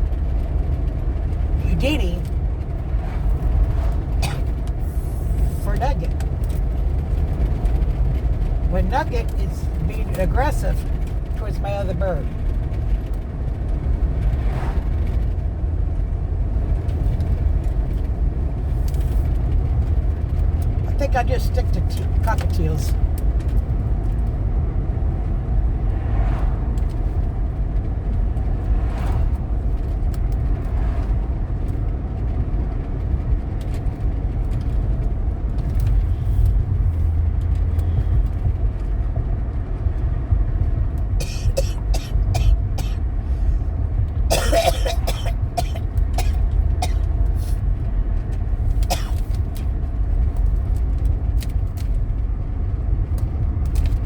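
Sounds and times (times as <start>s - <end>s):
car road noise inside cabin: 0.0s - 54.0s.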